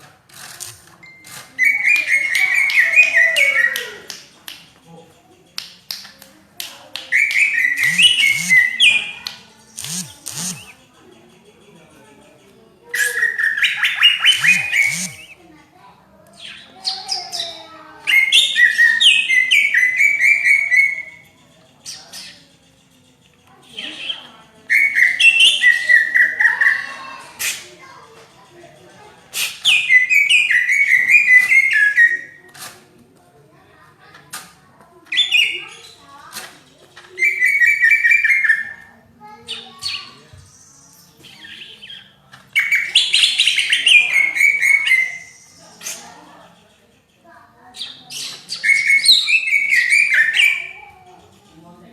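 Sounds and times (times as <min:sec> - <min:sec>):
songbird singing rapid notes: 0:07.1 - 0:10.7, 0:13.0 - 0:15.4
bird singing rapid varied notes: 0:07.1 - 0:15.4, 0:16.3 - 0:32.4, 0:35.1 - 0:51.6.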